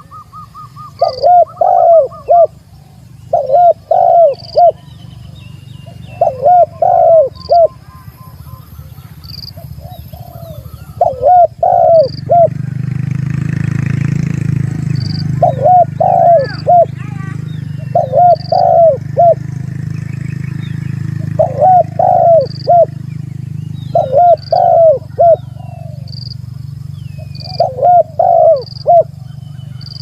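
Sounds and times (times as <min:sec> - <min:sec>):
dove cooing: 0:00.0 - 0:04.9, 0:05.8 - 0:13.0, 0:14.6 - 0:19.7, 0:21.2 - 0:23.0, 0:23.9 - 0:26.4, 0:27.2 - 0:30.0.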